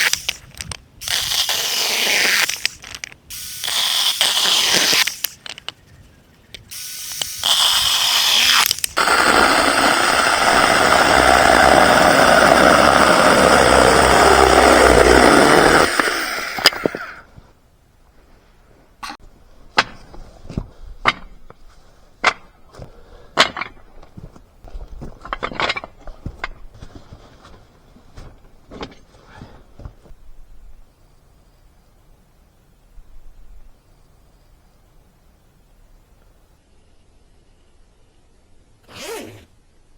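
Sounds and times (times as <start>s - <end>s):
chainsaw cutting: 1.0s - 5.4s, 6.7s - 17.3s.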